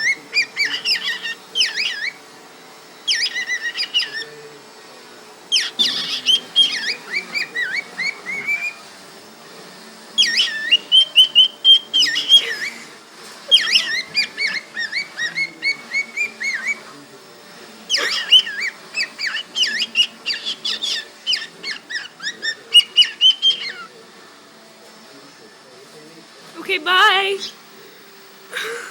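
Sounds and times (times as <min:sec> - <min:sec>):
cockatiel whistling and chattering: 0:00.0 - 0:02.3, 0:03.0 - 0:04.4, 0:05.4 - 0:08.9, 0:10.1 - 0:12.9, 0:13.5 - 0:16.9, 0:17.8 - 0:24.0.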